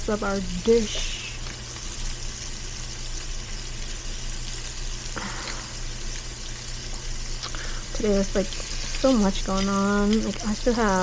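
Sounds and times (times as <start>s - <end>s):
food sizzling on stovetop: 0.0s - 11.0s.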